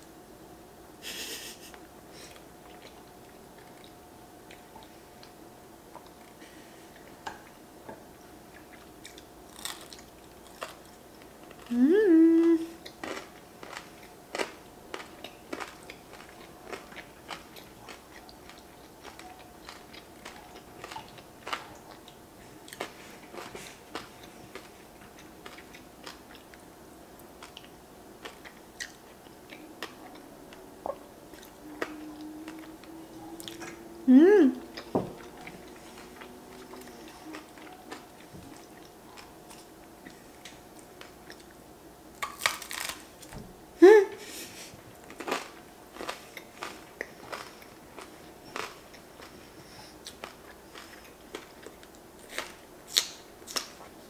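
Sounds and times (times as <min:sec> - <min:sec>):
close chewing with soft clicks: 0:02.3 - 0:11.7, 0:12.8 - 0:33.8, 0:34.7 - 0:41.6
person humming mm: 0:11.7 - 0:12.8, 0:31.7 - 0:34.9, 0:43.8 - 0:44.3.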